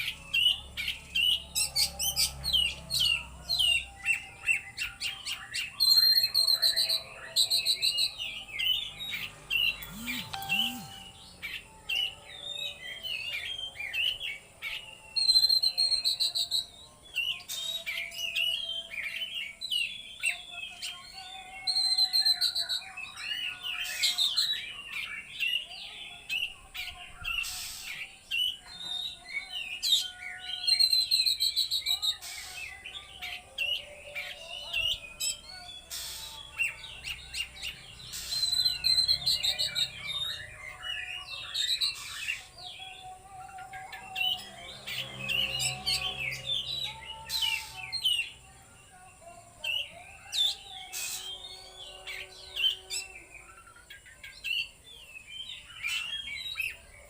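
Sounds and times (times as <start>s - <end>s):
bird singing chattering phrases: 8.7s - 11.7s, 25.0s - 29.1s, 34.3s - 40.5s.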